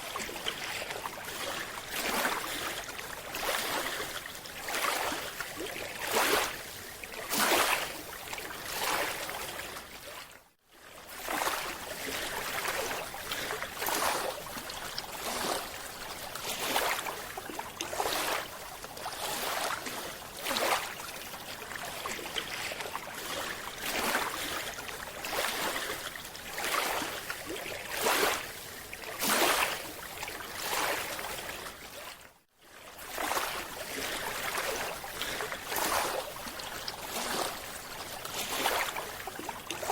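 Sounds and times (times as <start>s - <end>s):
water sloshing and splashing: 0.0s - 39.9s.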